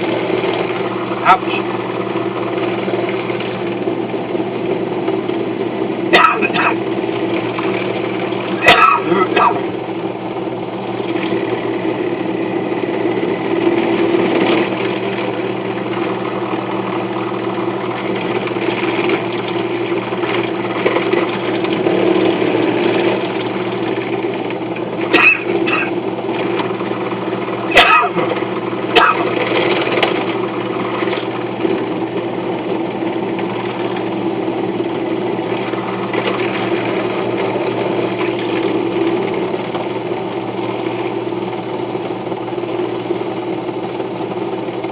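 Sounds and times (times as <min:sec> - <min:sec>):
power tool running: 0:00.0 - 0:27.4, 0:28.4 - 0:44.9
sharp clicks: 0:41.5 - 0:44.9.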